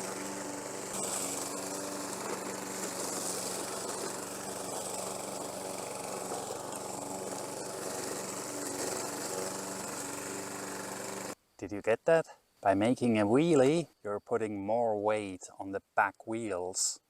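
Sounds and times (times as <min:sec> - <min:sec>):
lawn mower running: 0:00.0 - 0:11.4.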